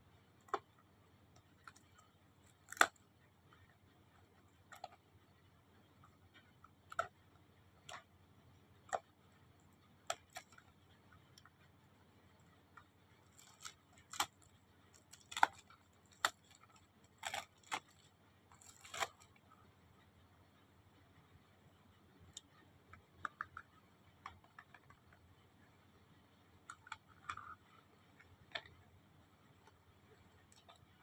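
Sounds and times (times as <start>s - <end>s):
packaging clicks and snips: 13.3s - 19.3s.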